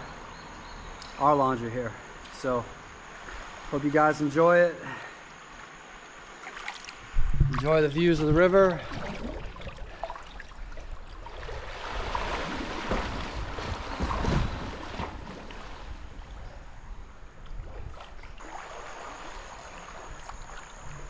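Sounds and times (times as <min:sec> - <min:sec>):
wind rumbling on microphone: 0:07.0 - 0:18.4
river water rushing: 0:07.8 - 0:16.6, 0:18.4 - 0:20.9.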